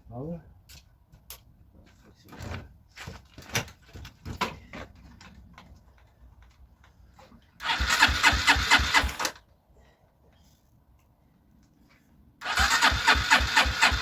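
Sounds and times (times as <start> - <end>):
electric starter cranking engine: 7.6 - 9.4, 12.4 - 14.0.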